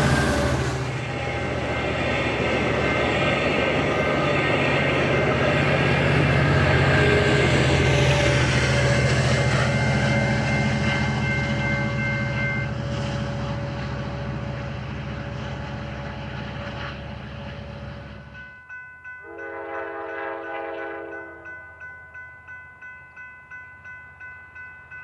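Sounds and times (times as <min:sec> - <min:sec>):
crossing bell ringing: 0:00.0 - 0:13.0, 0:18.1 - 0:25.0
train passing rumble: 0:00.0 - 0:25.0
train horn chord: 0:19.2 - 0:21.5.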